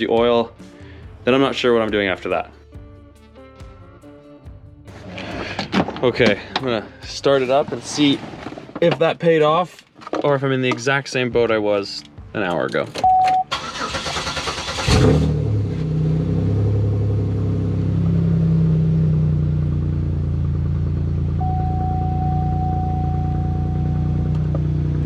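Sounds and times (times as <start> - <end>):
steady electronic tone: 21.4 - 24.3.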